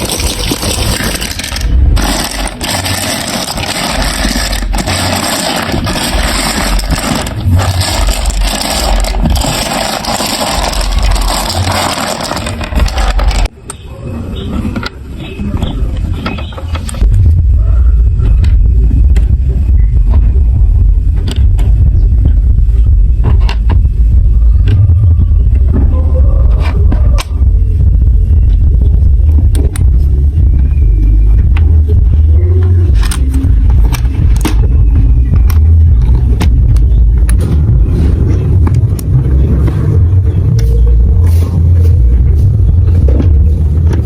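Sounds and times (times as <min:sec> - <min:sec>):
marbles rattling through plastic run: 0:00.0 - 0:13.5
heavy low rumble: 0:00.0 - 0:14.2, 0:17.0 - 0:44.0.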